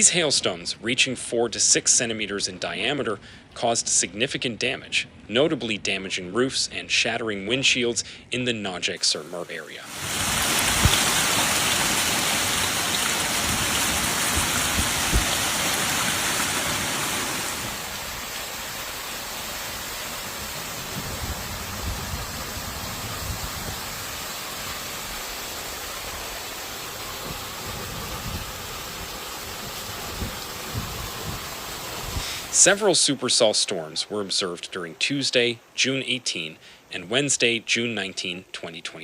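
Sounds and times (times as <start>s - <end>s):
heavy rain downpour: 9.0s - 34.1s.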